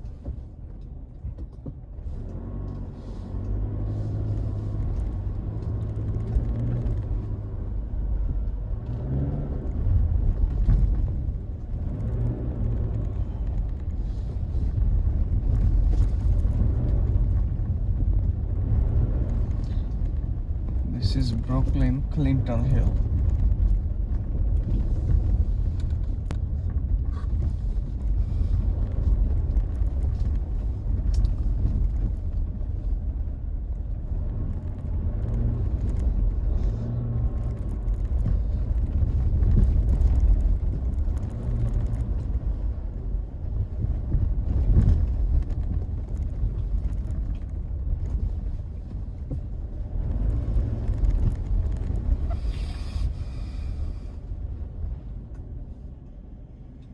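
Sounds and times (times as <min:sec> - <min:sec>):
car engine and road noise: 0:00.0 - 0:56.9.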